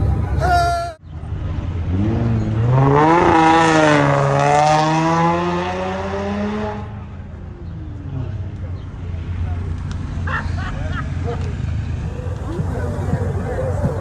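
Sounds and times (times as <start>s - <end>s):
vehicle engine accelerating: 11.5s - 14.0s.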